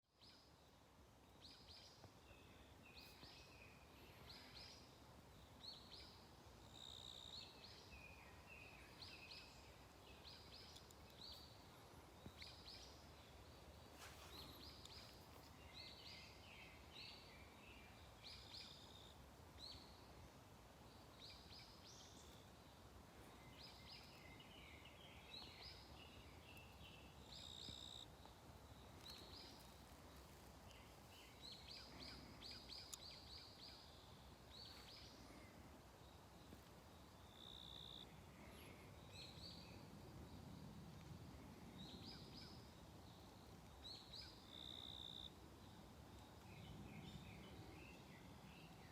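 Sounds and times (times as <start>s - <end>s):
songbirds chirping: 0.0s - 48.9s.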